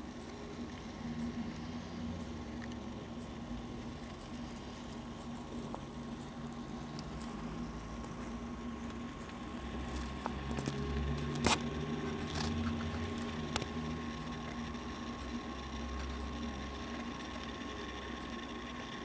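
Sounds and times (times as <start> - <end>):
constant hum: 0.0 - 19.0.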